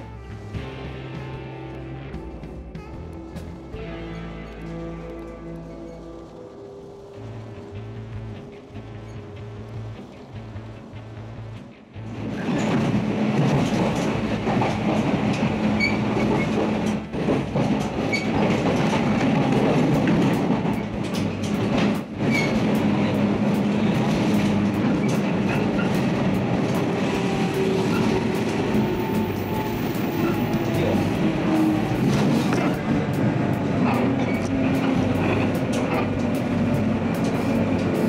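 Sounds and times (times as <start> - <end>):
train rumble and hum: 0.0 - 38.0
wheels clicking over rail joints: 12.0 - 38.0.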